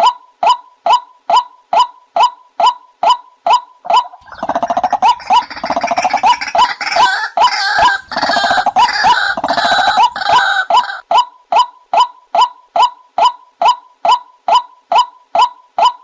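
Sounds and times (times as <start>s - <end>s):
harsh rapid bird chattering: 3.8s - 11.0s.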